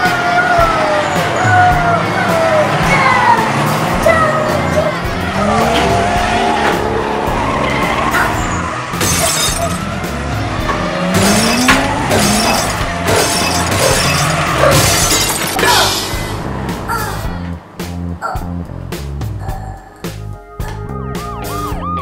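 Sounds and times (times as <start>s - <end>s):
sliding pitched sound effects: 0.1s - 16.9s, 20.3s - 22.0s
music with repeating beat: 20.1s - 22.0s.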